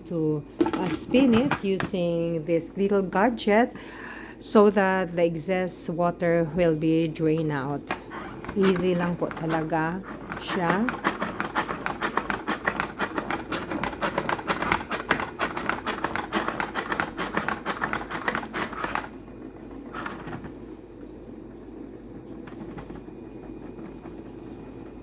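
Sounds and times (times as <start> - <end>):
salad spinner basket whirring: 6.4 - 25.0.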